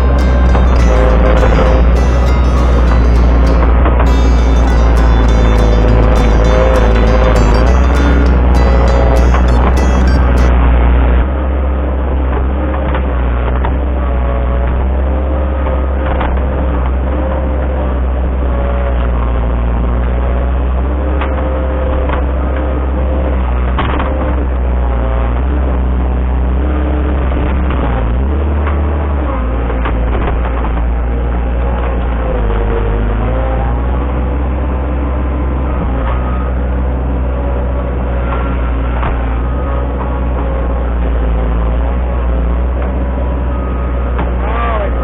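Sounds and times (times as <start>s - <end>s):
large engine running: 0.0s - 10.6s.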